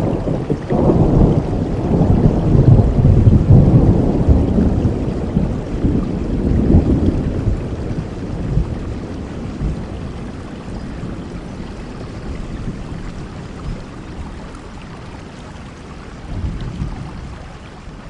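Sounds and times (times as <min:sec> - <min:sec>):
rolling thunder rumble: 0:00.0 - 0:14.8, 0:15.9 - 0:17.4
steady rainfall: 0:00.0 - 0:18.0.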